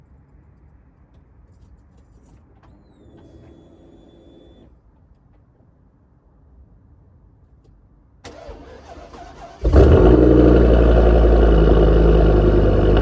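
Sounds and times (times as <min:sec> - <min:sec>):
low rumble: 0:09.9 - 0:13.0.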